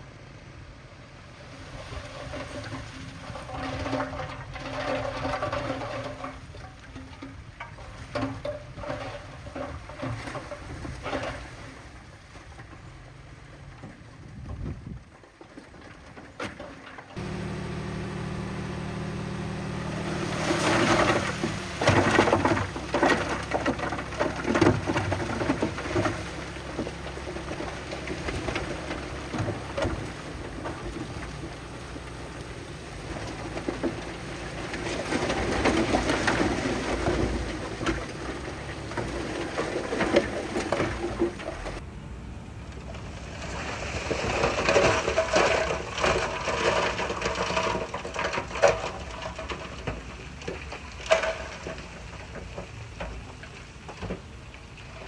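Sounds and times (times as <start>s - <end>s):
stone and soil clattering: 1.4s - 41.8s, 42.8s - 55.0s
diesel engine running: 17.2s - 55.0s.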